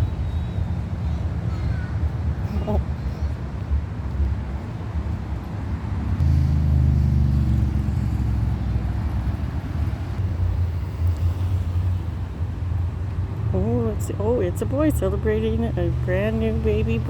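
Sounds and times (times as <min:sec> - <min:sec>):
car passing with low rumble: 0:00.0 - 0:17.0.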